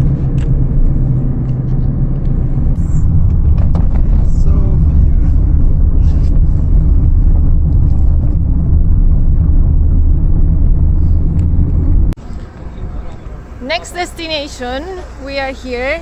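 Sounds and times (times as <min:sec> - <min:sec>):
moving vehicle rumble: 0:00.0 - 0:16.0.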